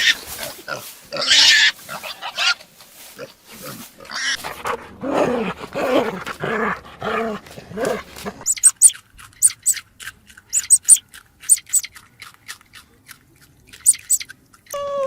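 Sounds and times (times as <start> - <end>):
pig grunting and squealing: 0.0 - 2.6, 3.2 - 12.2.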